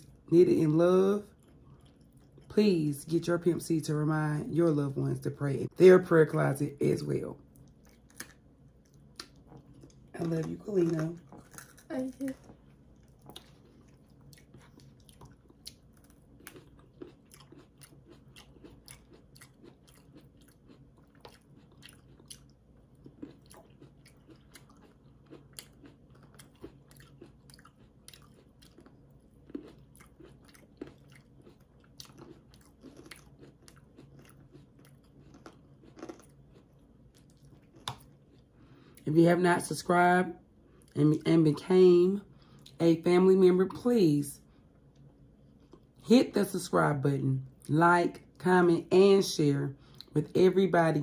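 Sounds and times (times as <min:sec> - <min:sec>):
people chewing crunchy food: 0:01.1 - 0:03.7, 0:06.6 - 0:39.7, 0:44.4 - 0:46.0, 0:49.8 - 0:50.3.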